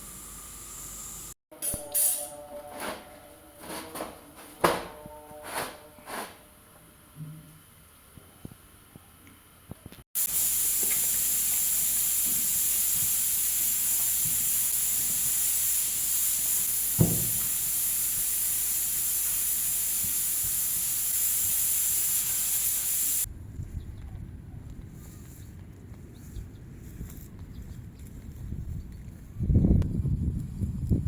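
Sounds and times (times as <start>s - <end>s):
steady hissing noise: 9.8s - 23.3s
low thump: 17.0s - 17.4s.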